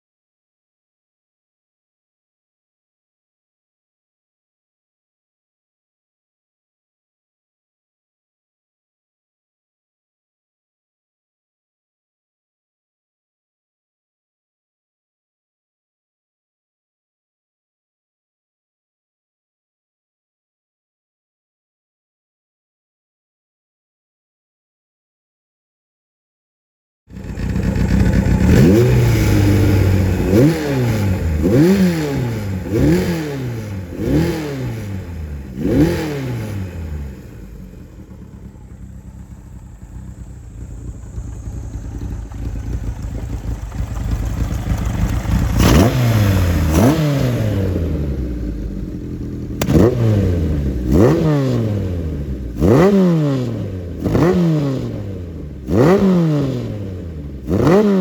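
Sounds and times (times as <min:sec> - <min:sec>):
motorcycle engine revving: 0:27.1 - 0:58.0.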